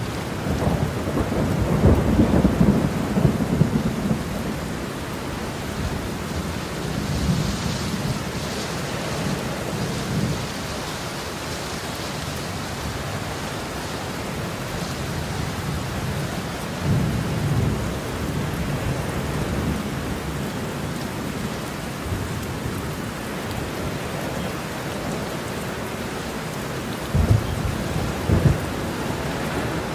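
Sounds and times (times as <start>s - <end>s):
thunder rumbling: 0.0s - 10.8s, 27.0s - 29.9s
heavy rain falling: 0.0s - 29.9s.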